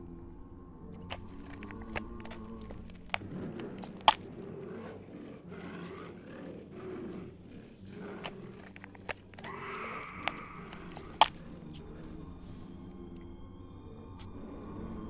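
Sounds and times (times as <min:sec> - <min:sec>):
low rough growling: 0:00.0 - 0:15.0
sharp cracks: 0:08.2 - 0:11.8.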